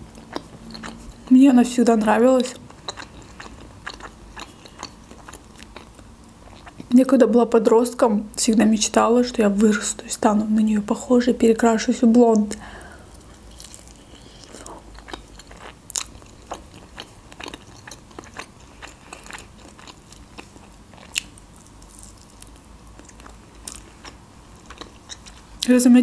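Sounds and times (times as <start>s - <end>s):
person chewing and biting food: 0.0s - 1.3s, 2.6s - 6.9s, 13.1s - 25.6s.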